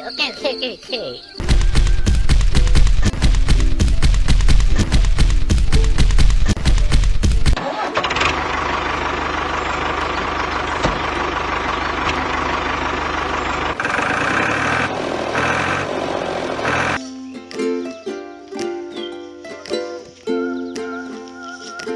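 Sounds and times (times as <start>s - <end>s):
engine running: 1.4s - 17.0s
ukulele music: 2.0s - 8.6s, 17.0s - 21.9s.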